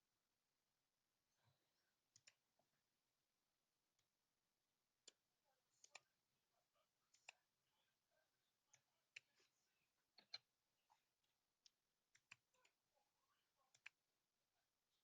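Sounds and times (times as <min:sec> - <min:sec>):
computer mouse clicks: 0:10.1 - 0:10.5, 0:12.1 - 0:12.8, 0:13.7 - 0:14.0.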